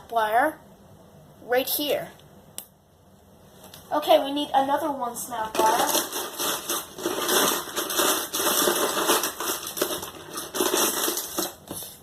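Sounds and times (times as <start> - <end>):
plastic parts clicking and clattering: 5.6 - 11.6.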